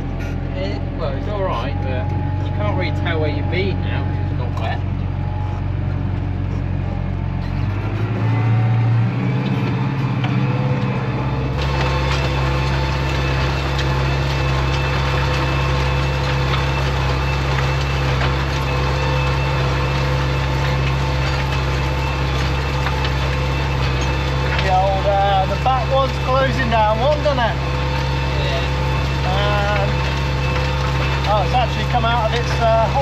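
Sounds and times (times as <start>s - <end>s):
tractor engine running: 0.0s - 33.0s
rattling clatter: 9.2s - 33.0s.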